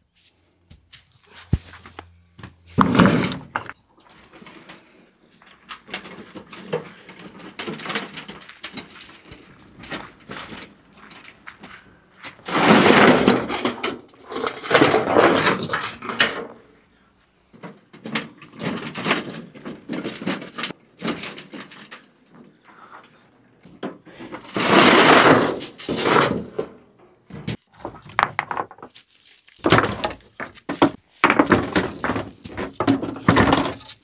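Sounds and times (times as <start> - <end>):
stones knocking and clattering: 2.8 - 3.8, 27.6 - 34.0.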